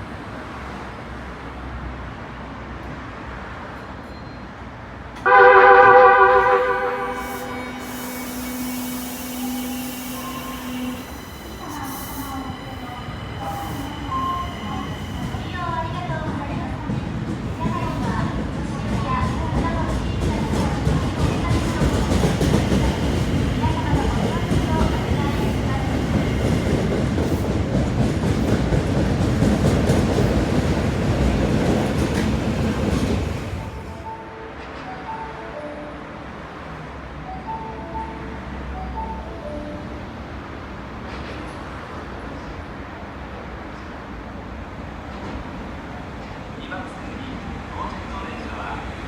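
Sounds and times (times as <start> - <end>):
train rumbling through station: 0.0 - 49.0
train wheels squealing: 4.0 - 4.6, 7.0 - 16.0.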